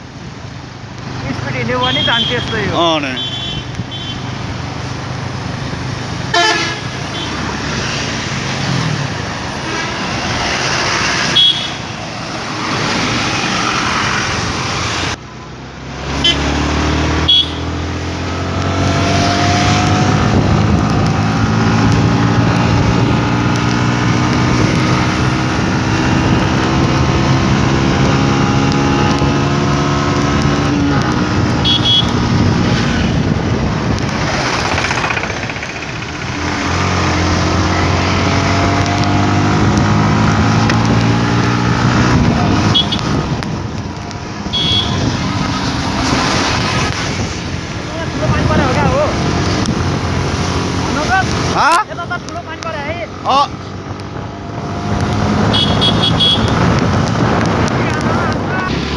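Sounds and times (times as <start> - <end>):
rushing air and road noise: 0.0 - 58.9
motorcycle engine running: 30.4 - 37.8
short horn beeps: 44.6 - 45.1, 55.5 - 56.5.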